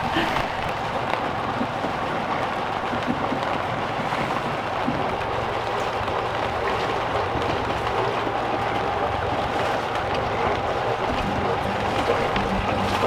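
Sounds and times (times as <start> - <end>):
rain falling: 5.1 - 13.0
low drone: 10.4 - 13.0.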